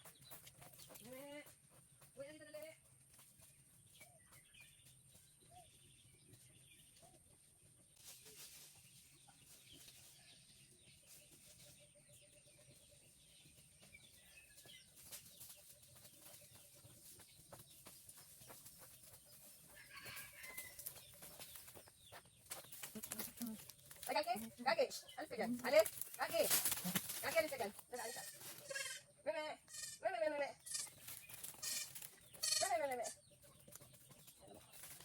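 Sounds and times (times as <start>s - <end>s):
chickens clucking: 30.8s - 35.0s.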